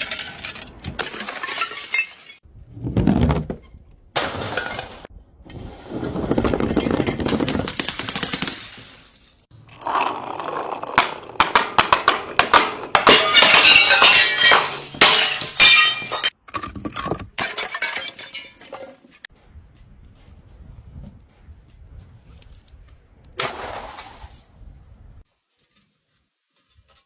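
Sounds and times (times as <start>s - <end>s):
glass bottles clinking and cracking: 0.0s - 2.4s, 11.4s - 19.3s.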